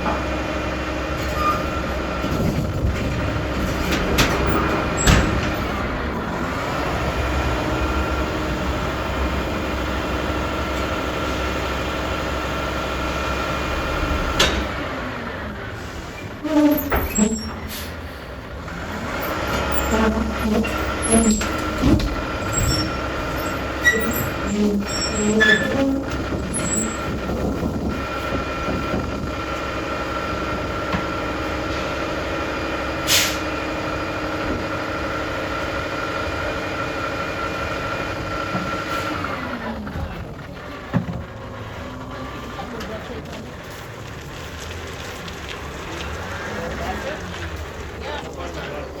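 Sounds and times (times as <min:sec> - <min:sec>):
metal clanks and knocks: 0:02.2 - 0:05.9
air brake hiss: 0:17.7 - 0:18.2, 0:33.1 - 0:33.5.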